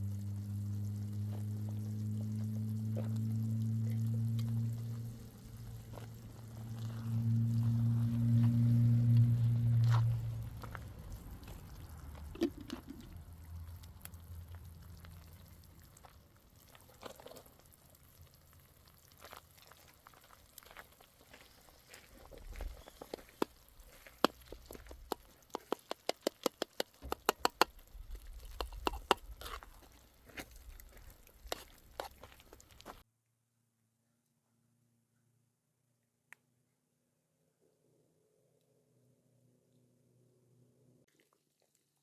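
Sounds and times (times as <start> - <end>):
utensil tapping cookware: 25.1 - 27.7.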